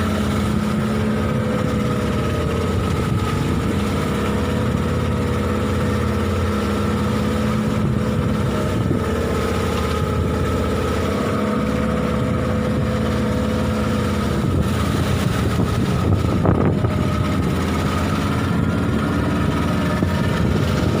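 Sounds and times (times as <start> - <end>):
boat engine running: 0.0 - 21.0
wind and water rushing: 0.0 - 21.0.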